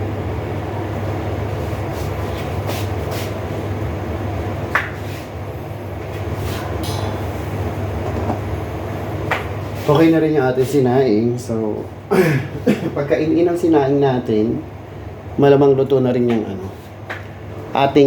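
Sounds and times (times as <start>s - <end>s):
gas burner rumbling: 0.0s - 18.0s.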